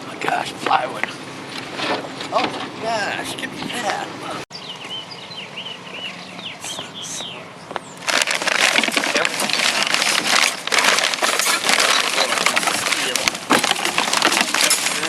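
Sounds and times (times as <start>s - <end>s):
birds chirping: 0.0s - 15.0s
loud rattling clatter: 8.0s - 15.0s.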